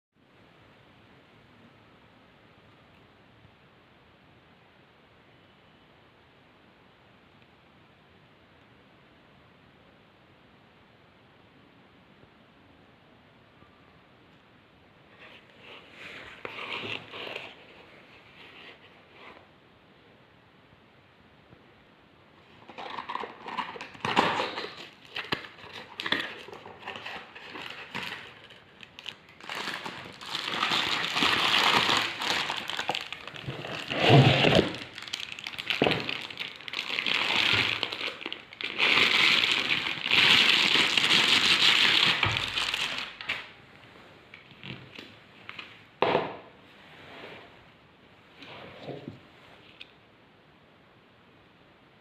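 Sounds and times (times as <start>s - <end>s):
crinkling and rustling: 22.4s - 43.6s.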